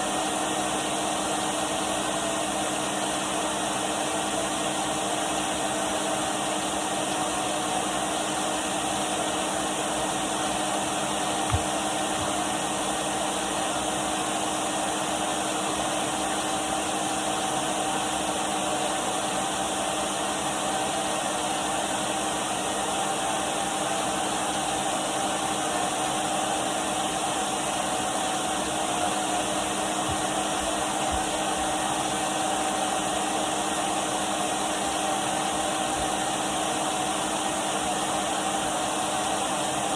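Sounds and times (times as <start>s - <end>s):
vacuum cleaner running: 0.0s - 39.9s
knock: 11.5s - 12.3s.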